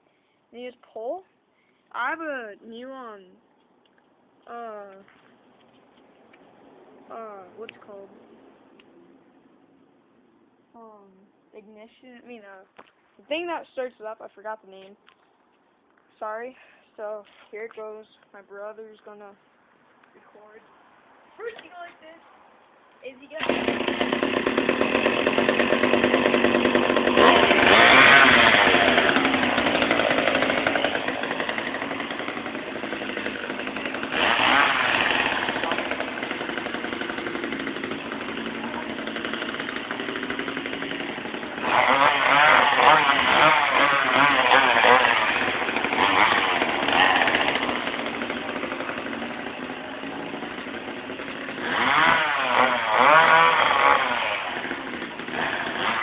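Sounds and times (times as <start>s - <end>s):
chainsaw idling and revving: 23.2s - 56.0s.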